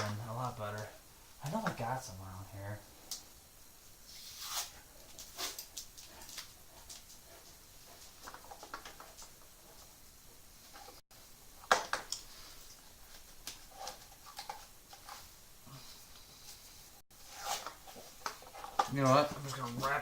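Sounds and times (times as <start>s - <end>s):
small clicks and rustles: 5.0s - 10.0s, 11.6s - 15.3s.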